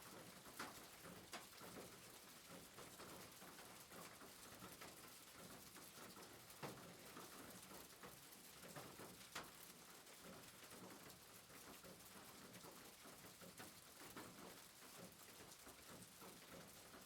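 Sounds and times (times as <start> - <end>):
soft rain pattering: 0.0 - 17.0.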